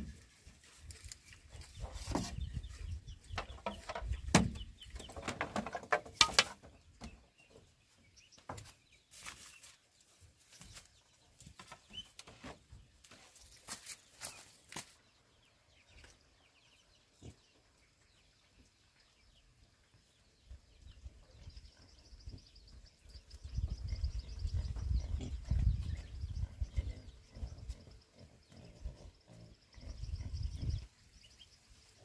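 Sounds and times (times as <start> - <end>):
pigs grunting: 26.5 - 30.7.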